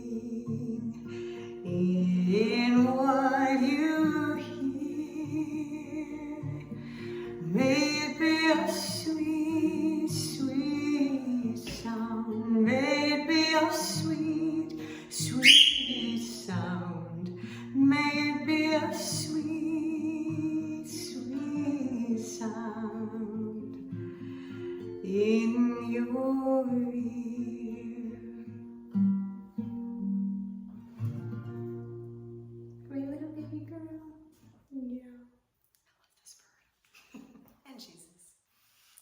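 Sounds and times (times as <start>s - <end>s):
woman singing: 0.0s - 24.1s, 24.8s - 28.7s, 32.9s - 35.2s
acoustic guitar strumming: 0.0s - 26.0s
bird squawk: 15.4s - 16.2s.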